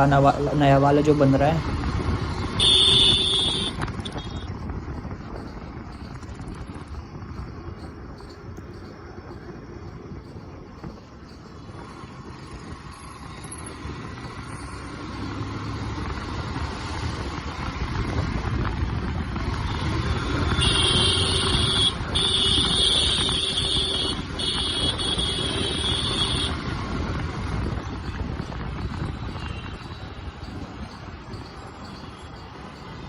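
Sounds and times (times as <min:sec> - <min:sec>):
motorcycle engine and road noise: 0:00.0 - 0:33.0
vehicle horn blasts: 0:02.6 - 0:04.5, 0:20.5 - 0:26.6.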